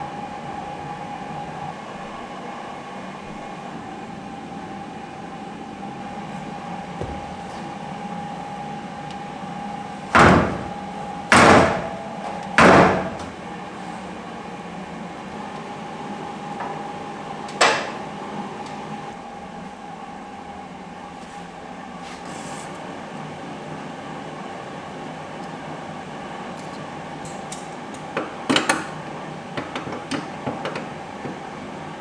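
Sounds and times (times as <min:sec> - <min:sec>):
car panel slamming shut: 0:10.2 - 0:10.8.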